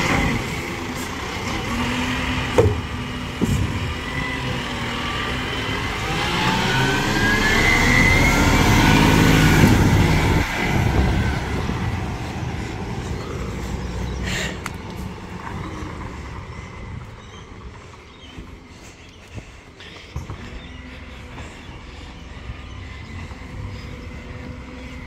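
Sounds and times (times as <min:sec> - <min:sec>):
garbage truck engine revving: 0:00.0 - 0:16.8
sharp knocks: 0:02.5 - 0:03.7.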